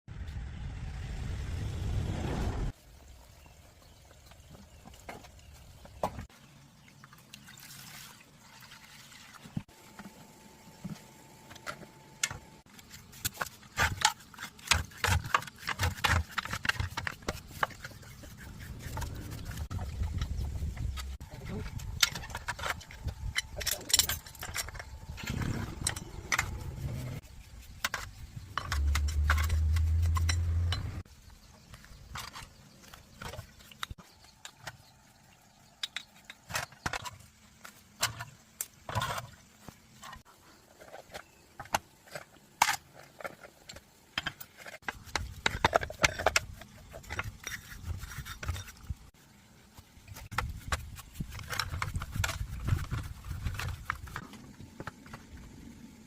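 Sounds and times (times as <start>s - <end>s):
loud low rumble: 0.1s - 2.7s
metal tools clinking and scraping: 16.4s - 27.2s, 27.8s - 31.0s.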